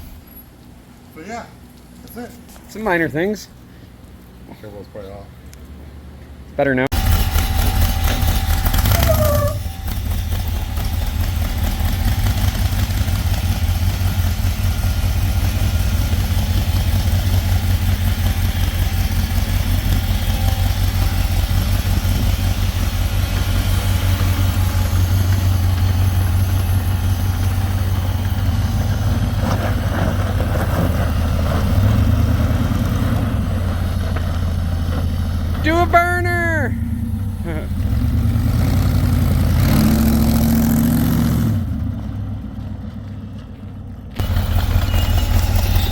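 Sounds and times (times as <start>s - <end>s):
engine idling: 6.9s - 39.4s, 42.0s - 45.9s.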